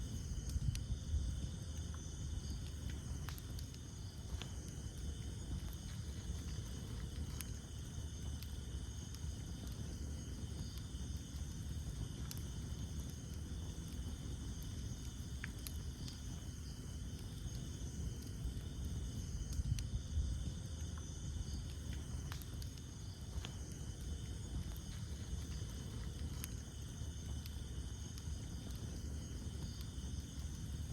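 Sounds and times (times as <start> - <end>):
campfire flames rumbling: 0.0 - 30.9
fire crackling and popping: 0.0 - 30.9.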